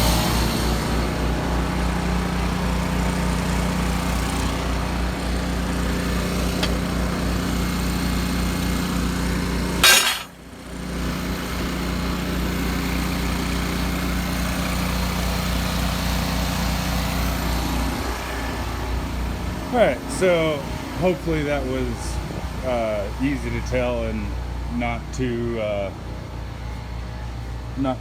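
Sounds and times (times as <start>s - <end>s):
air compressor running: 0.8s - 17.0s
generator engine running: 0.8s - 28.0s.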